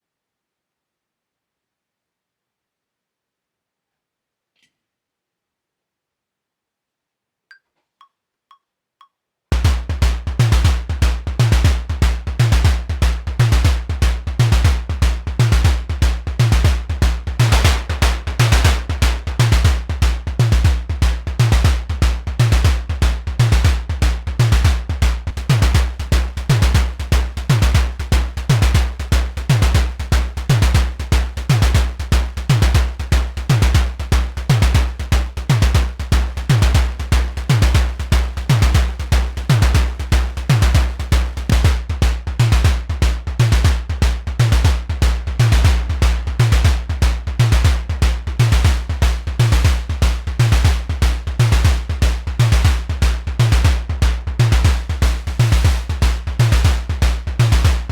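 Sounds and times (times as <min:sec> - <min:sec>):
synthesizer kick drum hits: 0:09.5 - 0:57.9
fast clicky percussion: 0:17.4 - 0:19.7.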